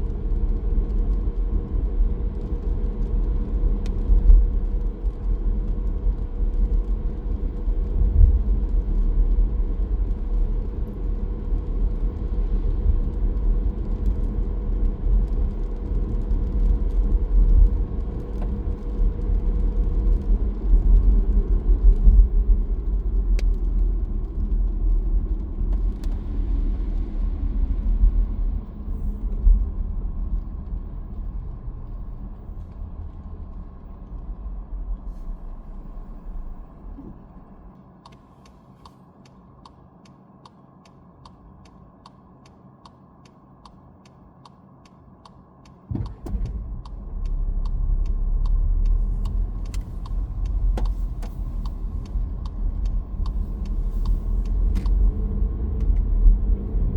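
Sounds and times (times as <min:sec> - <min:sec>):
car road and engine rumble: 0:00.0 - 0:56.9
steady hum: 0:26.1 - 0:56.9.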